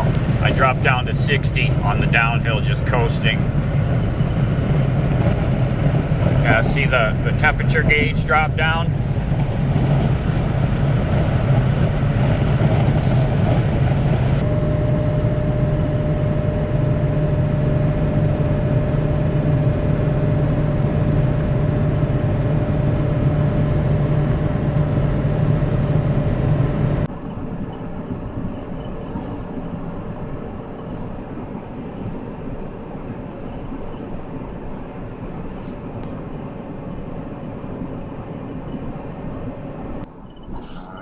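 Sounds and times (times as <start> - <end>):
thin steady whine: 0.0 - 27.1
truck engine and road noise: 0.0 - 27.1.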